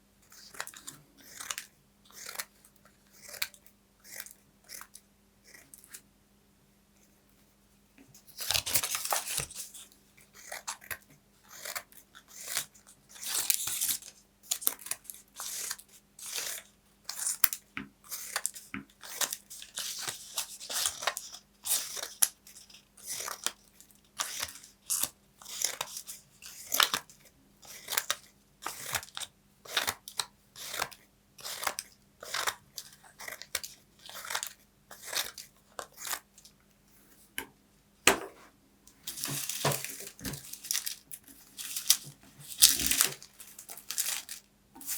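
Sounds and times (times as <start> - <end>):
paper crunching: 8.3 - 9.9, 39.0 - 44.9.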